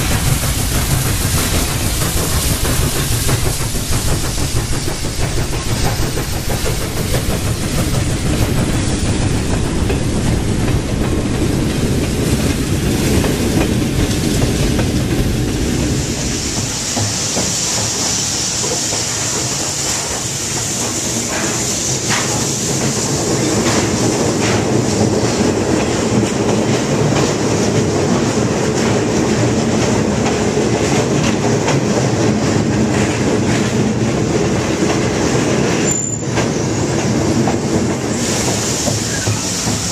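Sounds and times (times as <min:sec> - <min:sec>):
high steam hiss: 0:00.0 - 0:39.9
train carriages rolling on track: 0:00.0 - 0:39.9.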